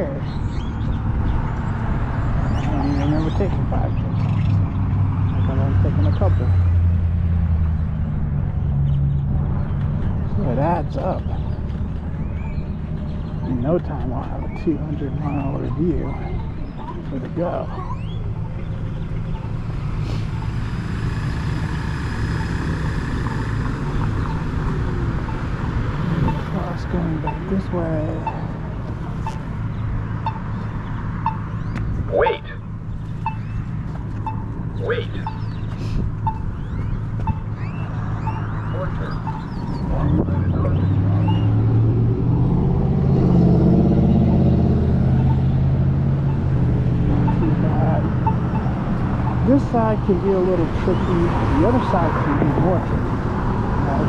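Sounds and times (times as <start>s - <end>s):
car engine pulling away: 0.0s - 31.8s, 35.4s - 54.0s
wind buffeting microphone: 11.2s - 32.1s.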